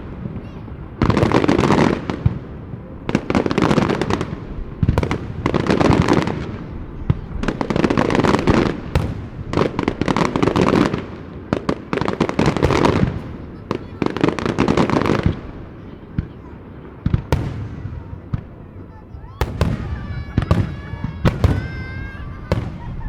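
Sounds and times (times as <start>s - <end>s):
firework shells bursting: 7.6s - 15.4s.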